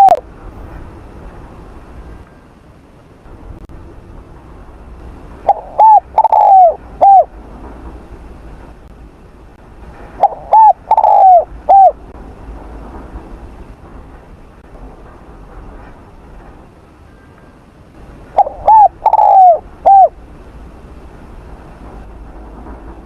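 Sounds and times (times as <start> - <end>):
dove cooing: 0.0 - 0.2, 5.5 - 7.3, 10.2 - 12.0, 18.4 - 20.2.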